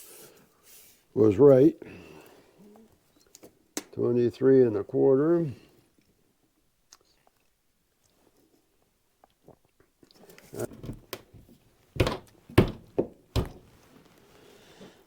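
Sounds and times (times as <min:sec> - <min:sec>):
wooden knocks and thunks: 0:10.7 - 0:13.7.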